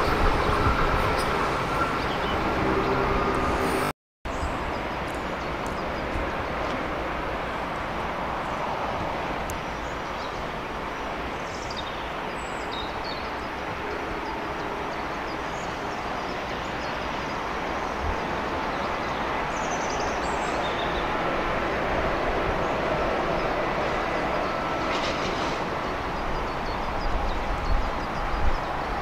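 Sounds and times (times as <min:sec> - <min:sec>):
distant rail and road traffic: 0:00.0 - 0:29.0.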